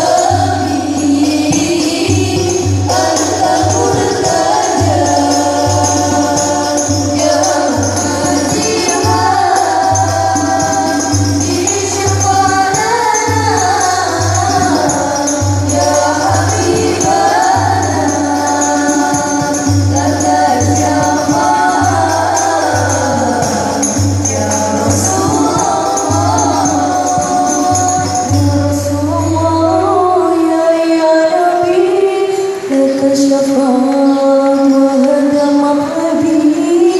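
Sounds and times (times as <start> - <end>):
jingling tambourine: 0.0 - 30.4
group of voices singing: 0.0 - 36.9
low hand-drum beat: 0.1 - 29.0.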